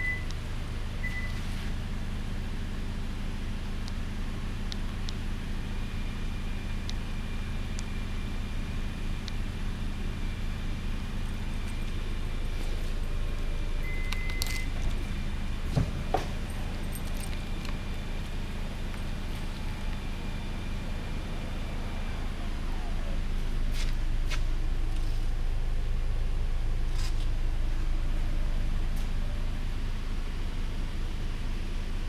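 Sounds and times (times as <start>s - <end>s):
short beep: 0.0s - 0.4s, 1.0s - 1.6s, 13.8s - 14.8s
car engine idling: 0.0s - 32.0s.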